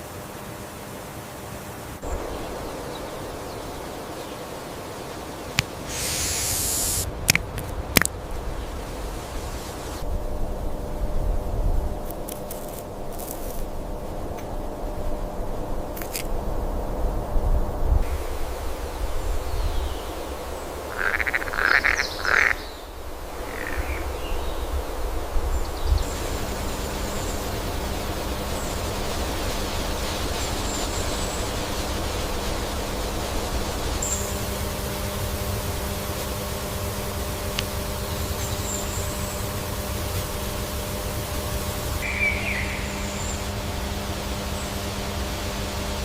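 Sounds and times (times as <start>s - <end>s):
constant hum: 0.0s - 46.0s
steady low rumble: 1.9s - 46.0s
croaking animal trills: 20.9s - 24.4s, 42.0s - 43.2s
click: 37.5s - 37.7s
faint bird chirp: 42.0s - 43.6s.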